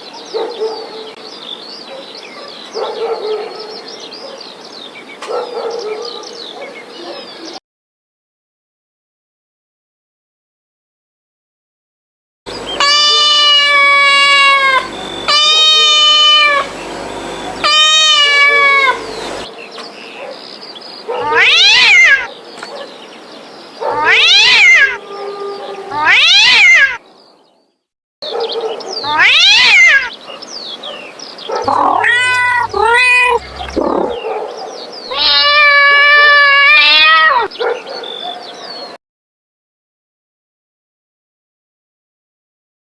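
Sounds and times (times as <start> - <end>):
cats meowing: 12.7 - 16.8, 17.5 - 19.5, 21.2 - 22.3, 23.9 - 27.0, 29.0 - 30.1, 31.6 - 34.2, 35.1 - 37.5.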